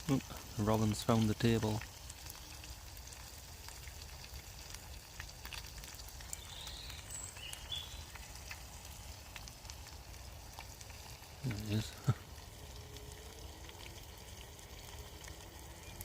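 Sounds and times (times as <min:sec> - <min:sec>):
burger sizzling in a pan: 0:00.0 - 0:16.0.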